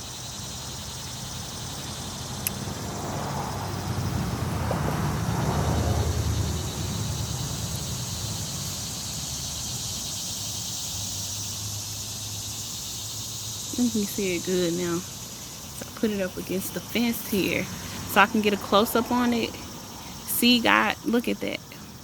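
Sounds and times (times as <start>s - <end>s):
crickets chirping: 0.0s - 22.0s
car passing by: 1.8s - 10.0s, 14.4s - 20.3s.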